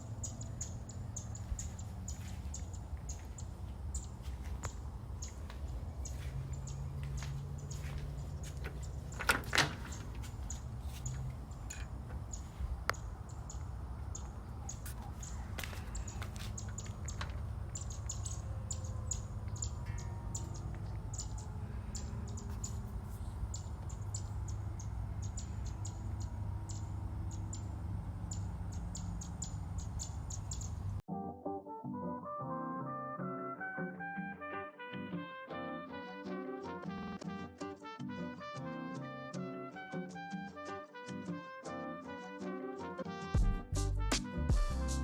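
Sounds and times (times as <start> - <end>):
small birds chirping: 0.0 - 31.0
brass music: 31.1 - 45.0.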